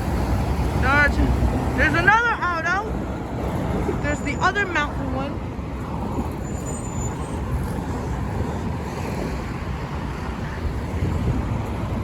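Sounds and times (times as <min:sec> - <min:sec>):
highway traffic rumble: 0:00.0 - 0:12.0.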